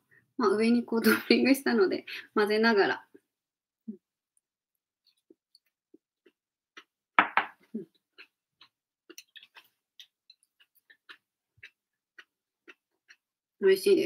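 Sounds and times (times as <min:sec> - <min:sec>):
person chewing: 0:05.0 - 0:13.6.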